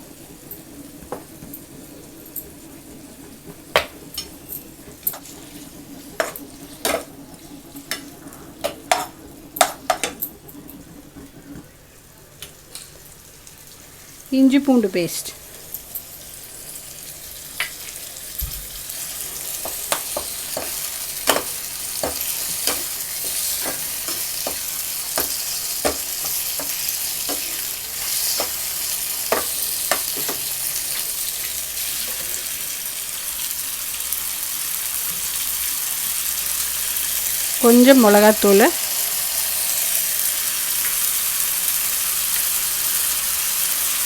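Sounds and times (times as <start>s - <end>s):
liver sizzling in a pan: 0.0s - 10.4s, 12.6s - 44.0s
spoon scraping a pan: 6.2s - 7.1s, 8.6s - 10.2s, 19.6s - 30.5s.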